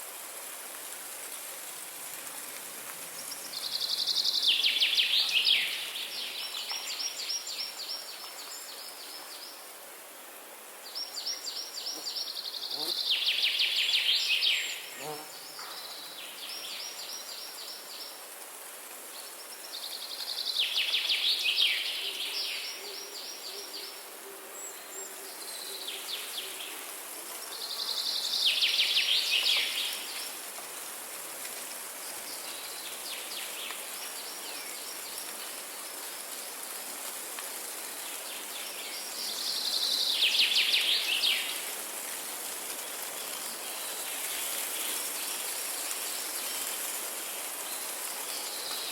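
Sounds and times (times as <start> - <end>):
steady background hiss: 0.0 - 48.9.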